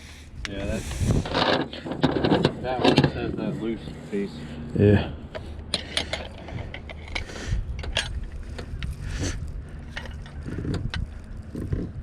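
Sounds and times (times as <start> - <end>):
steady low rumble: 0.0 - 12.0
fishing gear clicks and clinks: 5.3 - 12.0.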